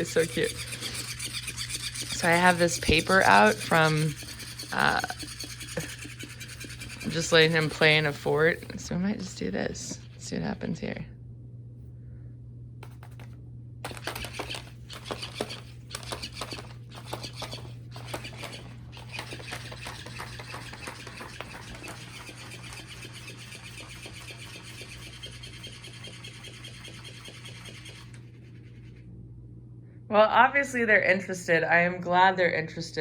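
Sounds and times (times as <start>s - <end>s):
paper rustling and scratching: 0.0s - 8.8s, 12.8s - 13.3s, 13.9s - 29.0s
low hum: 0.0s - 33.0s.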